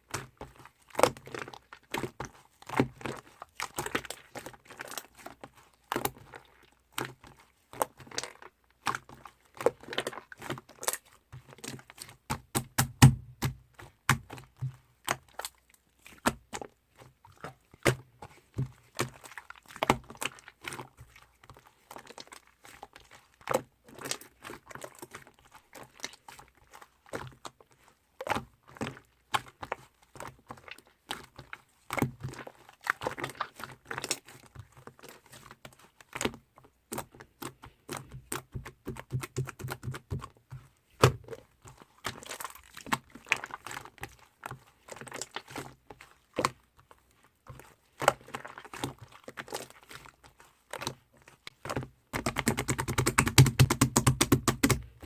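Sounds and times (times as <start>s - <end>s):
sharp clicks and taps: 52.2s - 55.0s.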